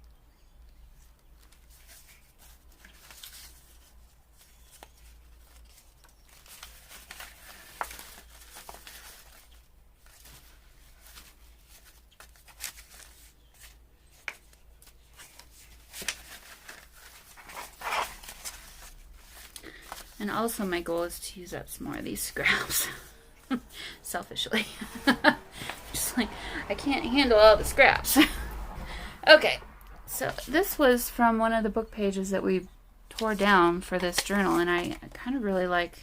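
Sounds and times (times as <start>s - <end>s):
paper rustling and crinkling: 1.0s - 23.7s, 33.1s - 35.8s.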